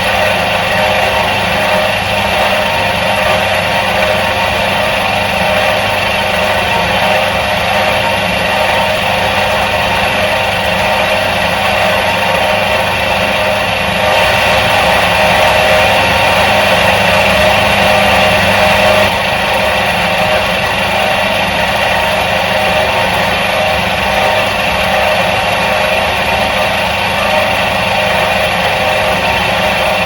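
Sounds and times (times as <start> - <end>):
washing machine motor humming: 0.0 - 30.0.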